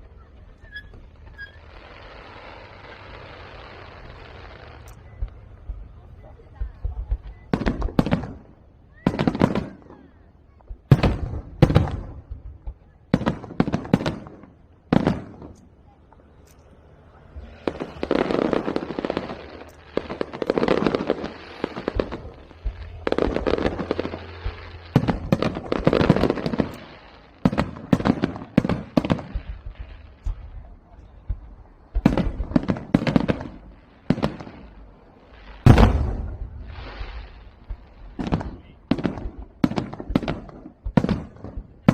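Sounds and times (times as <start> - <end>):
firecrackers crackling: 0.0 - 41.9
loud firework bang: 35.6 - 41.1.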